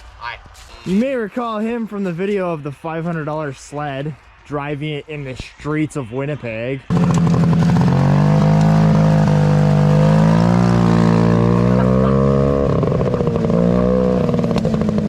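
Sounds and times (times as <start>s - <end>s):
snowmobile engine running: 6.9s - 15.0s.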